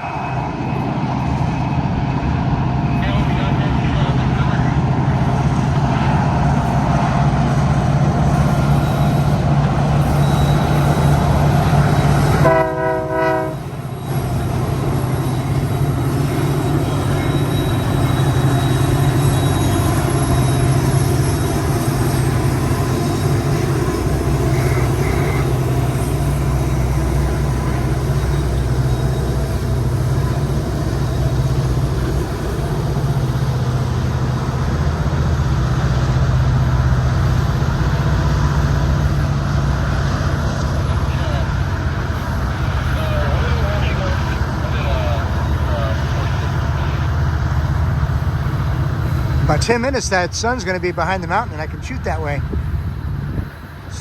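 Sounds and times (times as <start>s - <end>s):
freight train rolling past: 0.0s - 54.0s
train horn blast: 12.0s - 13.8s.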